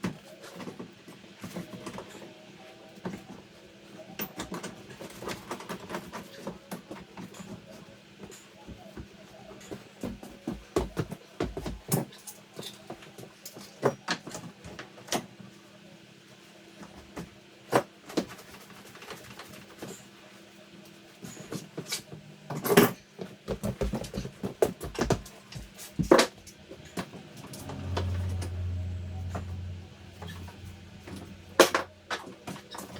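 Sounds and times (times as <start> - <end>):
low hum: 26.4 - 32.9.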